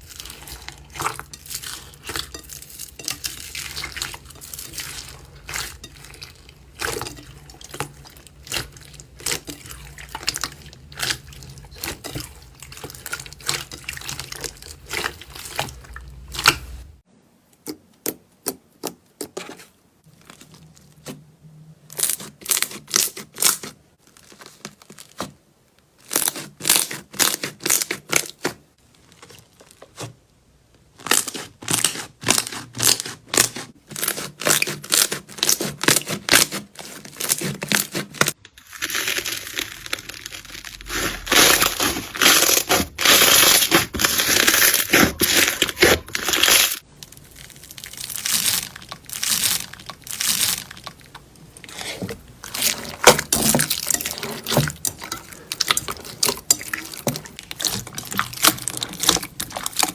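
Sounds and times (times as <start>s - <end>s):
slime crackling when squeezed: 38.6s - 51.1s.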